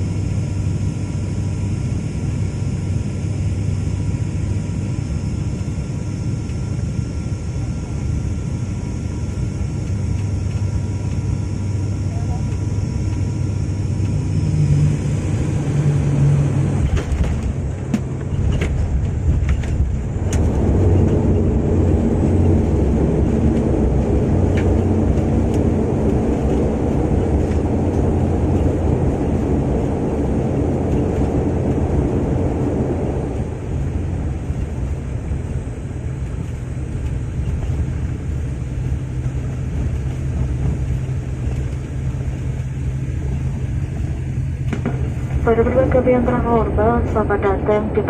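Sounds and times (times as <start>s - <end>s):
jet engine reverse thrust roar: 0.0s - 48.0s
knocks and rattles in aircraft cabin: 9.2s - 11.4s, 16.8s - 33.0s, 36.2s - 45.5s.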